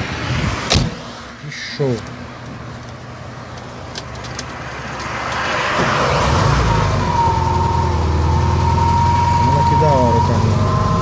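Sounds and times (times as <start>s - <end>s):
car engine humming: 0.7s - 11.0s
high-pitched whine: 6.2s - 11.0s.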